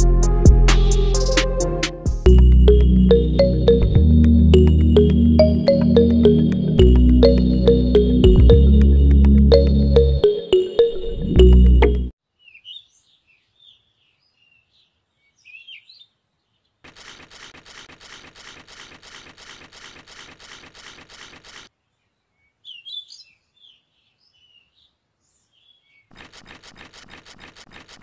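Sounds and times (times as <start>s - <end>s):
small birds chirping: 12.4s - 16.8s, 21.8s - 27.1s.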